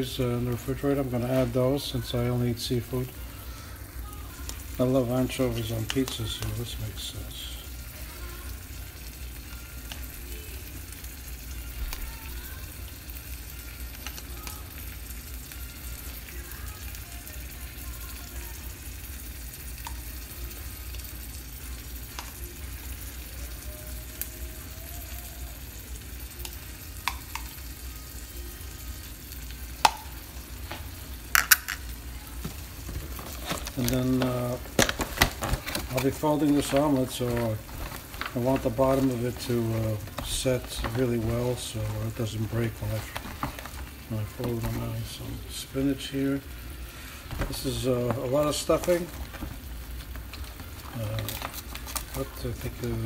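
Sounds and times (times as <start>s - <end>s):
omelet sizzling in skillet: 0.0s - 53.0s.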